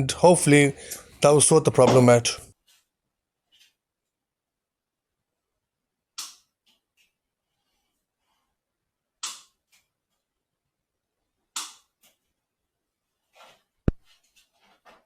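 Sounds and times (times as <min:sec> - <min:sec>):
sharp snaps of tools: 0:06.2 - 0:06.5.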